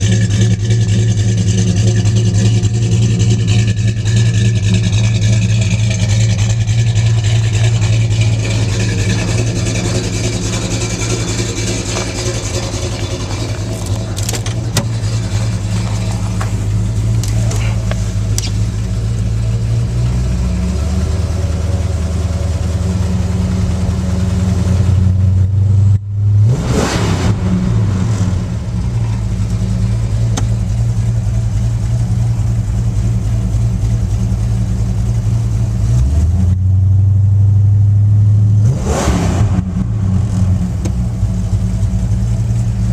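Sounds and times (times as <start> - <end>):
engine throttle blip: 0.0 - 20.3
car engine running: 0.0 - 42.9.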